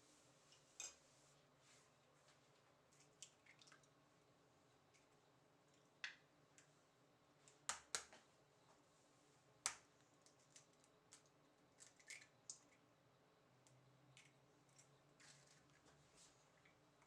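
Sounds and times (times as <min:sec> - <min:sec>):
clicks and taps of small objects: 0:05.7 - 0:06.7, 0:07.5 - 0:08.2, 0:09.6 - 0:12.8, 0:13.6 - 0:16.0.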